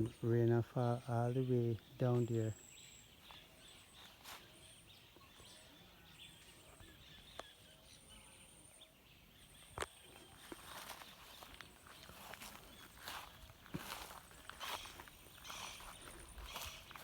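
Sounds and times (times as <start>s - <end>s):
high insect trills: 10.6s - 17.0s.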